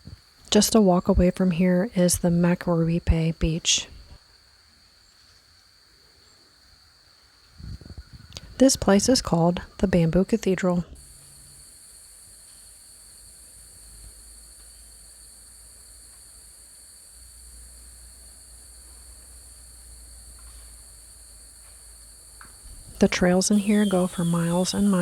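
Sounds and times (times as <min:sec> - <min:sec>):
high-pitched insect chorus: 0:00.0 - 0:10.3, 0:10.9 - 0:25.0.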